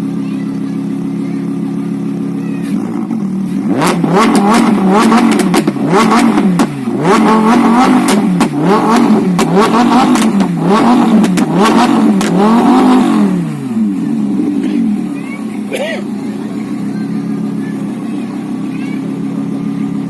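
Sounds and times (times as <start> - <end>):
sports car engine revving: 0.0 - 20.0
exhaust crackles and pops: 2.6 - 13.2.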